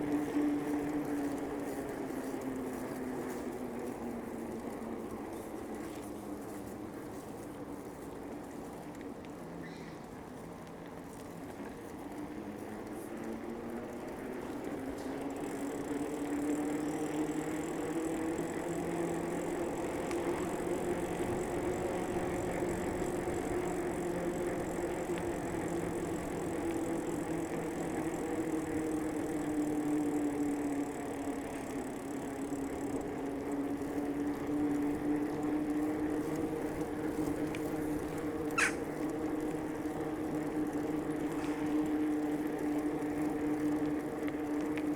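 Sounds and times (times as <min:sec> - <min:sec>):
bicycle tyres and drivetrain hum: 0:00.0 - 0:44.9
short high squeak: 0:38.6 - 0:38.8.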